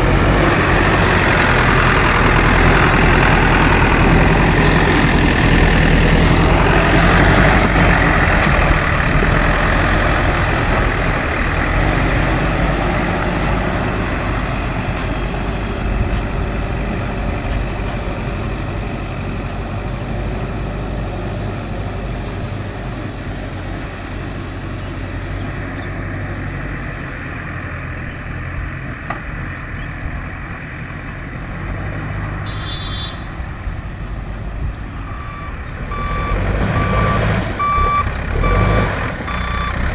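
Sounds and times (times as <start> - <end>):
diesel engine running: 0.0 - 39.9
short high beep: 35.1 - 38.7.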